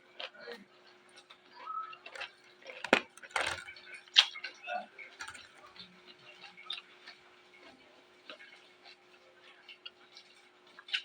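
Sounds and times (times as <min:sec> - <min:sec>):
chewing raw vegetables: 0:00.2 - 0:04.6, 0:05.2 - 0:11.0.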